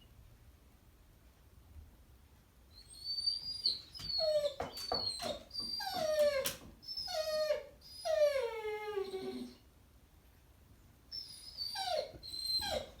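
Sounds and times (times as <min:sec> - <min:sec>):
dog whining and howling: 0:02.8 - 0:09.6, 0:11.1 - 0:13.0.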